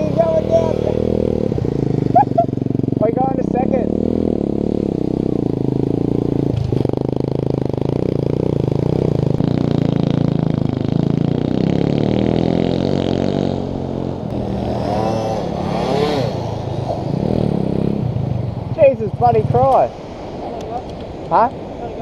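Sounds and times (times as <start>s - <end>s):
small motorbike engine revving: 7.9s - 18.1s.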